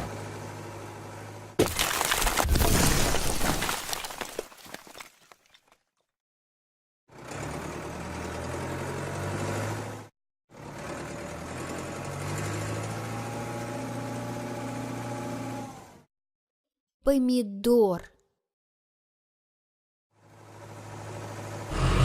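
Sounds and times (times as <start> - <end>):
cartoon vehicle engine running: 20.2 - 22.0.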